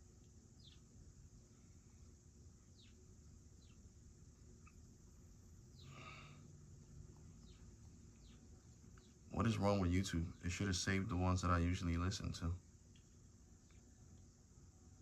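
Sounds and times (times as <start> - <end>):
birds chirping: 0.0 - 5.0, 5.7 - 6.4, 7.1 - 14.8.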